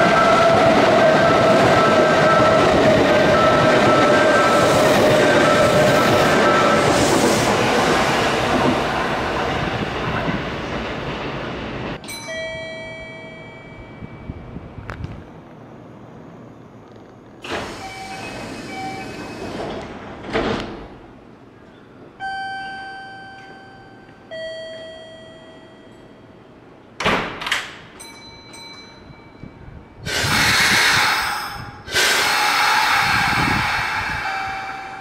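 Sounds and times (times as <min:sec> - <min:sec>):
train doors shutting: 0:00.0 - 0:11.2, 0:16.8 - 0:24.8, 0:26.8 - 0:29.0, 0:30.0 - 0:35.0
train rushing along platform: 0:00.0 - 0:12.2, 0:13.8 - 0:22.3, 0:27.8 - 0:35.0.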